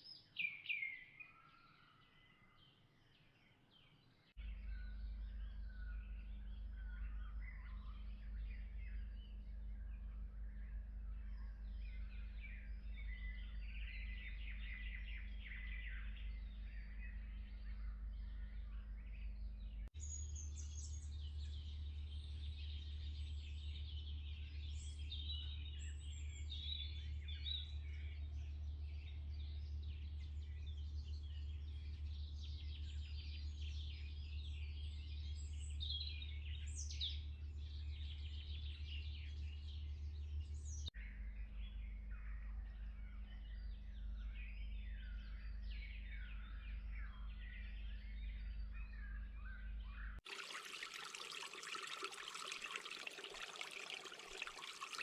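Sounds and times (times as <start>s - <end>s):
low background hum: 4.4s - 34.0s.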